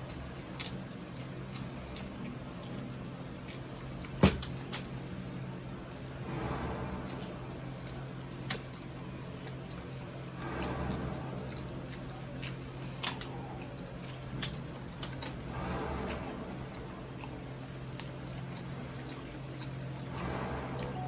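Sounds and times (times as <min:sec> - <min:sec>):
chewing crispy food: 0:00.0 - 0:21.0
steady low hum: 0:00.0 - 0:21.0
crackles of crisp skin: 0:07.9 - 0:11.0, 0:11.6 - 0:15.4.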